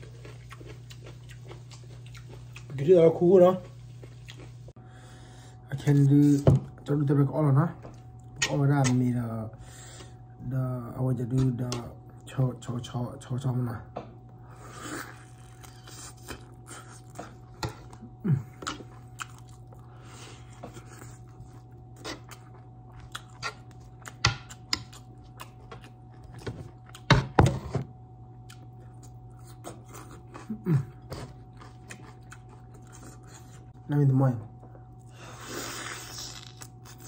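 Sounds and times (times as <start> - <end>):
wet chewing and lip smacks: 0.0 - 2.8, 3.9 - 4.6, 18.6 - 19.8, 21.2 - 27.1, 31.6 - 33.6.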